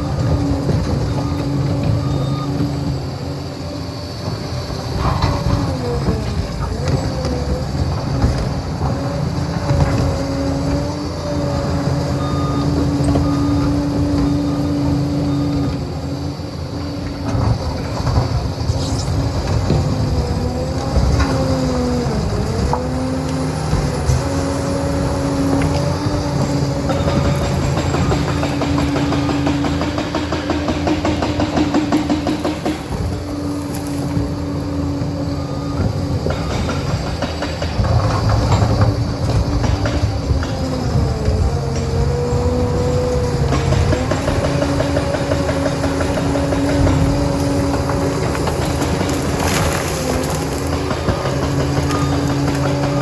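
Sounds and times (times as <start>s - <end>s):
diesel dozer engine running: 0.0s - 53.0s
knocks and clatter: 4.2s - 11.0s, 17.0s - 53.0s.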